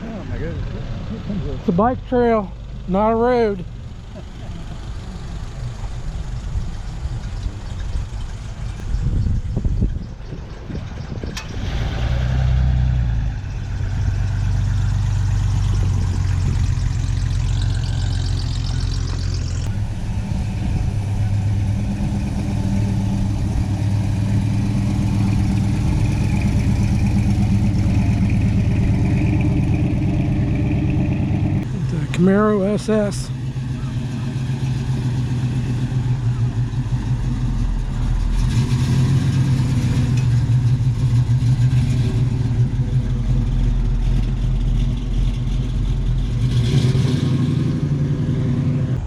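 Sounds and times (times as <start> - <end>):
close engine idling: 0.0 - 11.6, 14.4 - 38.6
cars driving slowly past: 0.0 - 49.0.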